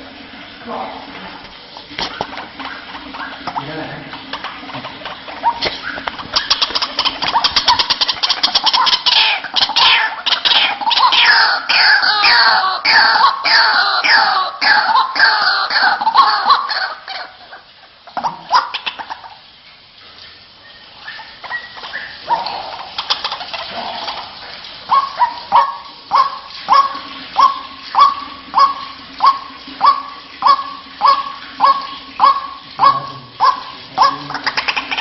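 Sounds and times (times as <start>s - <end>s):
waterhen calling: 0.0s - 35.0s.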